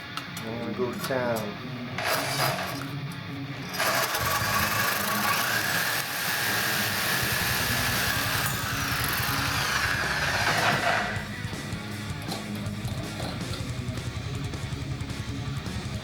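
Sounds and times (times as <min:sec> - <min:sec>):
power tool grinding steel: 0:02.0 - 0:03.0, 0:03.6 - 0:11.5.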